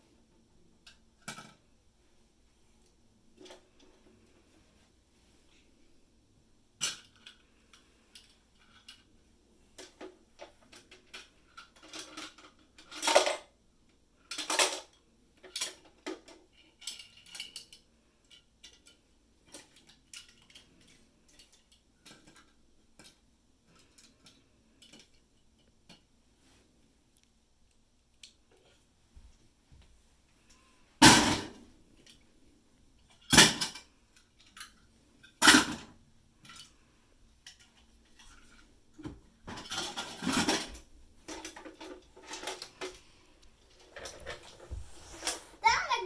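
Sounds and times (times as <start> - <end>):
plastic toy pieces clattering: 10.7 - 13.5, 14.3 - 17.8.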